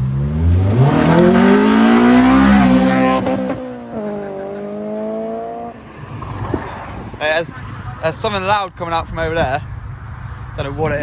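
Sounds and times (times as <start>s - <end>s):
car engine revving: 0.0s - 8.5s.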